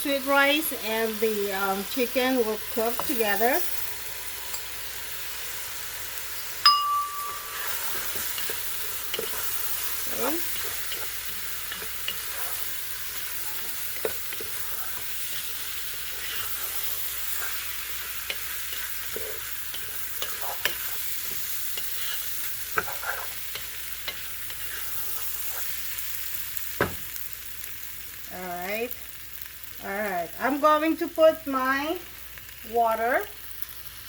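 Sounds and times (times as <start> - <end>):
food sizzling in a pot: 0.0 - 34.0
utensil scraping a pot: 7.2 - 26.0.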